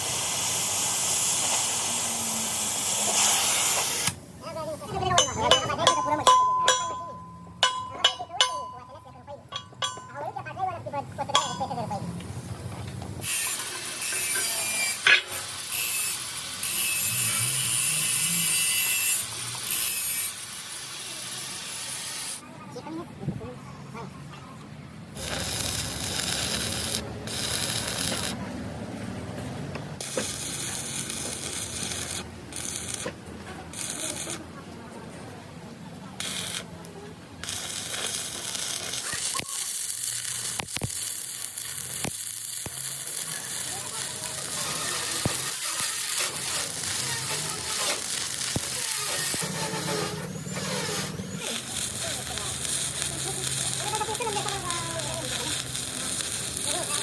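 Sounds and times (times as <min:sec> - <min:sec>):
arc welding hiss: 0:00.0 - 0:04.2, 0:13.2 - 0:22.4, 0:25.2 - 0:28.4, 0:30.0 - 0:34.4, 0:36.2 - 0:36.7, 0:37.4 - 0:57.0
power tool grinding metal: 0:13.2 - 0:22.4, 0:25.2 - 0:28.4, 0:37.4 - 0:57.0.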